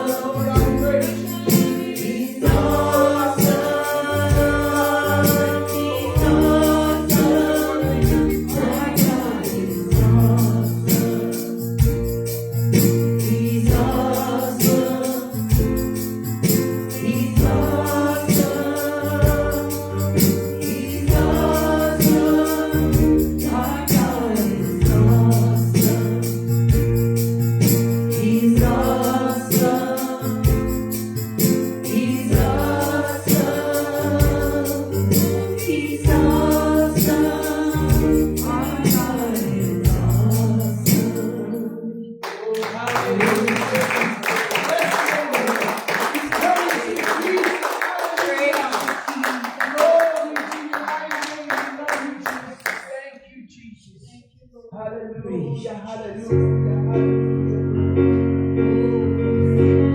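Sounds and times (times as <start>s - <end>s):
gospel band with sung vocals: 0.0s - 53.7s
steady drum beat: 0.4s - 41.1s.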